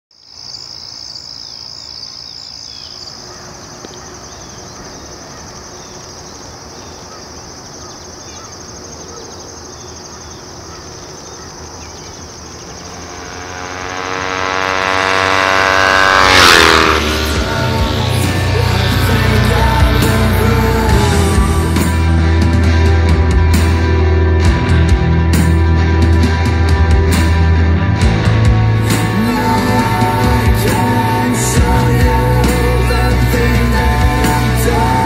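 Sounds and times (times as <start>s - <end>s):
insects chirring: 0.2s - 15.5s
deep multi-tone sound: 12.8s - 35.0s.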